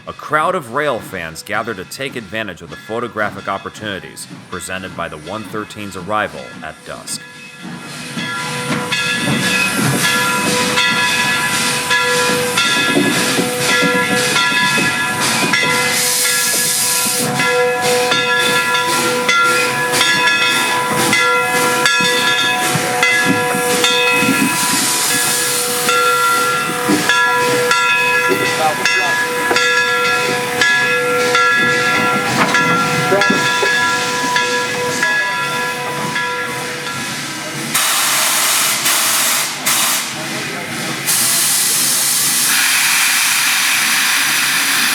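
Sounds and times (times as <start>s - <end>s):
steady ringing tones: 1.2s - 37.6s
steam hissing: 7.7s - 44.9s
irregular knocks: 26.9s - 34.6s.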